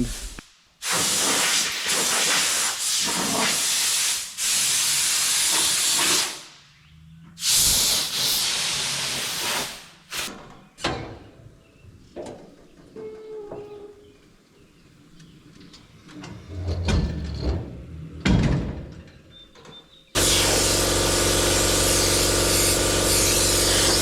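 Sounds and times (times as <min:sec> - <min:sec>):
high-pressure jet hissing: 0:00.0 - 0:06.6, 0:07.4 - 0:10.3, 0:20.2 - 0:24.0.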